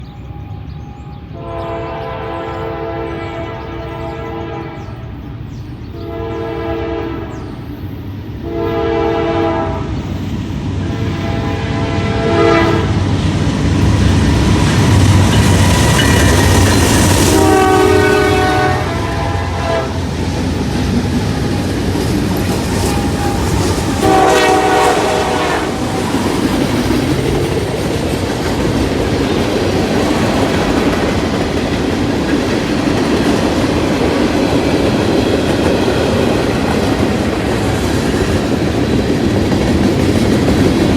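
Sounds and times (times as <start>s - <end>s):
train air horn blasts: 0.0s - 5.1s, 6.0s - 7.6s, 8.4s - 10.0s, 10.8s - 13.1s, 16.5s - 26.6s
locomotive engines rumbling: 0.0s - 40.9s
wheels clattering on rails: 13.0s - 17.6s, 20.0s - 40.9s.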